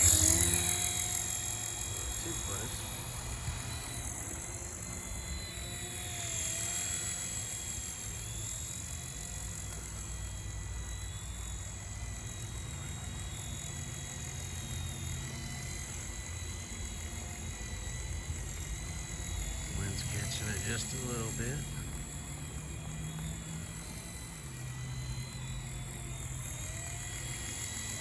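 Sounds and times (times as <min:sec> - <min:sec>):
rc helicopter rotor whine: 0:00.0 - 0:28.0.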